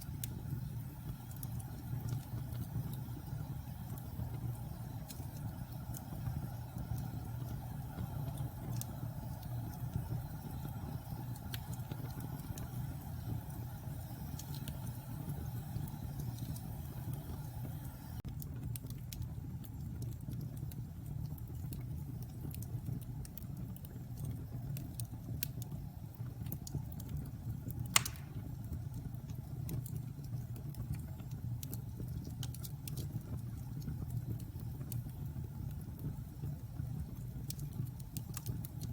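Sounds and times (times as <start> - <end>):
fire crackling: 0.0 - 38.9
fire flames rumbling: 0.0 - 38.9
fire pop: 27.8 - 28.8.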